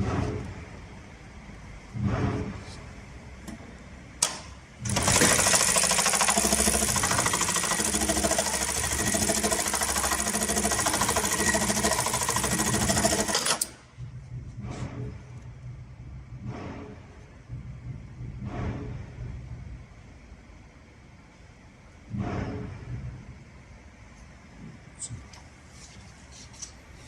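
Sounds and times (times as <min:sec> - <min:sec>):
sewing machine stitching fast: 0:04.9 - 0:13.8.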